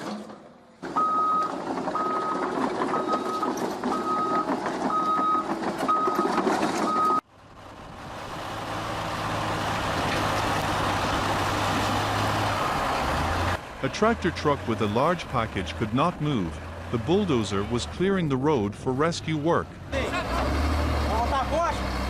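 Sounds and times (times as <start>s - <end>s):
machinery clatter: 0.0s - 7.2s
heavy vehicle engine running: 0.1s - 22.0s
backup alarm beeping: 1.0s - 7.2s.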